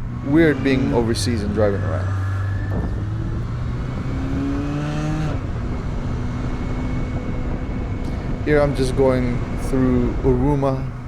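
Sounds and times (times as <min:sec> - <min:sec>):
constant rush of noise: 0:00.0 - 0:11.0
motorcycle engine running: 0:00.0 - 0:11.0.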